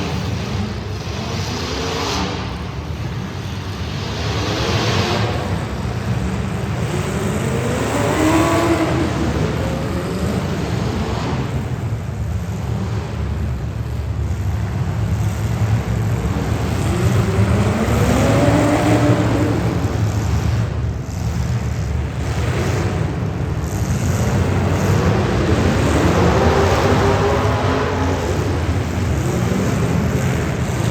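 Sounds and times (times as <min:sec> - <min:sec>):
race car engines: 0:00.0 - 0:30.9.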